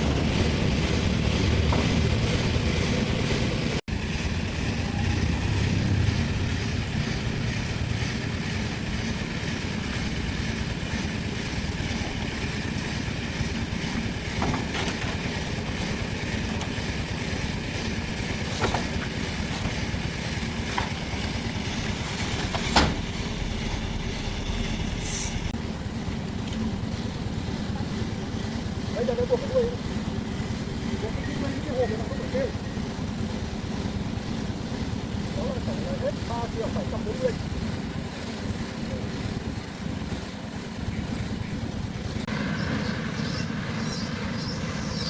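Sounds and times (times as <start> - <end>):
vehicle engine rumbling: 0.0 - 45.0.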